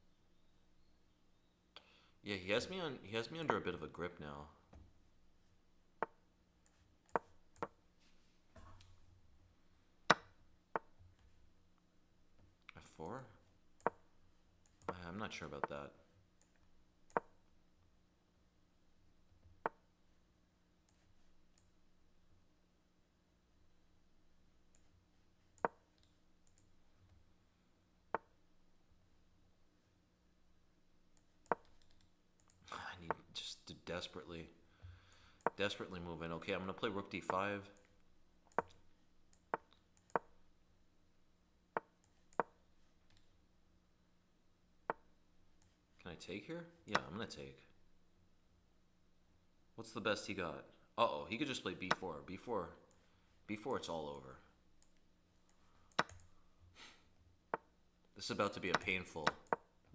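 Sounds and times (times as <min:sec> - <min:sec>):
chess move clacks: 0:07.1 - 0:07.8, 0:10.1 - 0:11.0, 0:13.8 - 0:14.1, 0:14.7 - 0:15.9, 0:16.5 - 0:17.4, 0:31.3 - 0:33.4, 0:36.6 - 0:40.4, 0:41.8 - 0:42.6, 0:46.9 - 0:47.3, 0:51.8 - 0:52.1, 0:57.5 - 0:59.7
chess move knocks: 0:07.2 - 0:07.8, 0:58.6 - 0:59.6.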